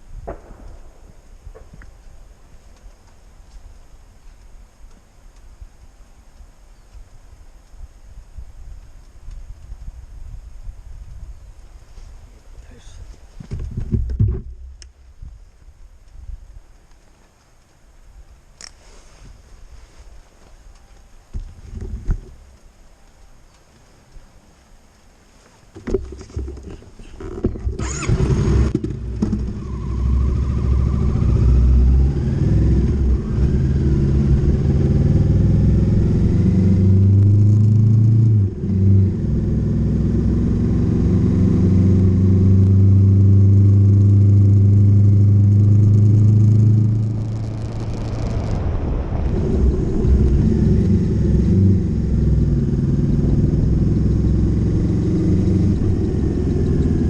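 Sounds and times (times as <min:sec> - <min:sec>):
motorcycle engine accelerating: 0:26.0 - 0:57.0.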